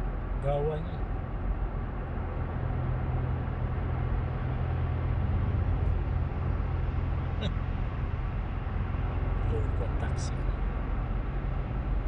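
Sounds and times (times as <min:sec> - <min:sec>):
car engine hum: 0:00.0 - 0:12.0
road noise inside car: 0:00.0 - 0:12.0.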